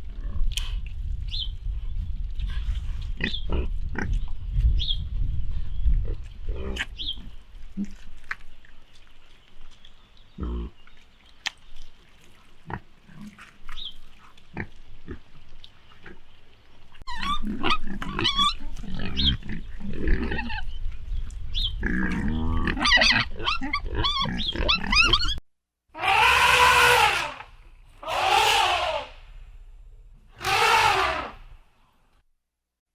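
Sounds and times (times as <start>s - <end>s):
pigs grunting and squealing: 3.2s - 4.2s, 6.0s - 8.0s, 10.4s - 10.8s, 17.1s - 20.8s, 21.8s - 25.4s, 26.0s - 29.2s, 30.4s - 31.5s.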